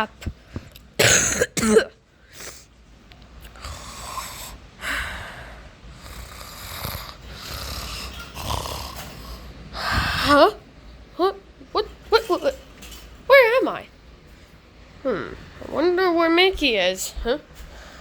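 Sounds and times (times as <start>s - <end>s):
person imitating snoring: 3.5s - 4.6s, 6.0s - 10.4s
loud breathy sound: 3.5s - 10.4s.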